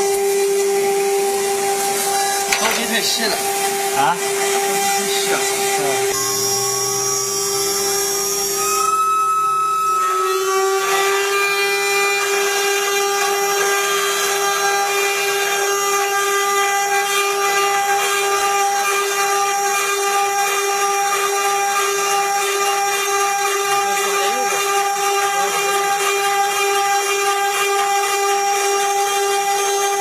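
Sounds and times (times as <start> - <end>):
hiss of cutting: 0.0 - 9.0
router spindle whining: 0.0 - 30.0.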